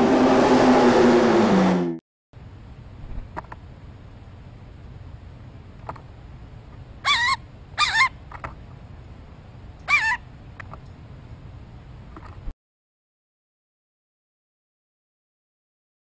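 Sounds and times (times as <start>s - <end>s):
low background hiss: 2.4s - 12.2s
bird calls with wavering pitch: 7.0s - 8.2s, 9.8s - 10.3s.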